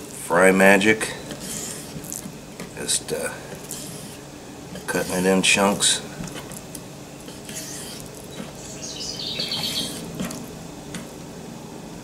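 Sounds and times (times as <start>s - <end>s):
bird chirping: 8.3s - 10.0s.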